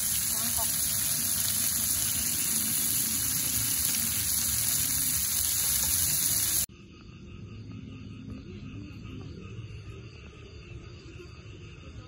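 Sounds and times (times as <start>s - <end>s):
rain hiss on tent: 0.0s - 6.7s.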